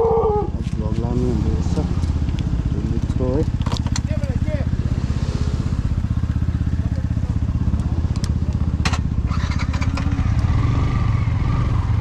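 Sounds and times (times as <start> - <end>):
motorcycle engine running: 0.0 - 12.0
sharp clicks and rattles: 2.0 - 4.4.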